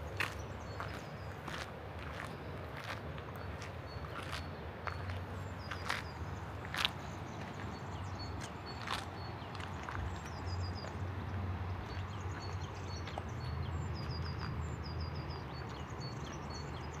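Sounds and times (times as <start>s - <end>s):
small songbirds chirping: 0.0s - 17.0s.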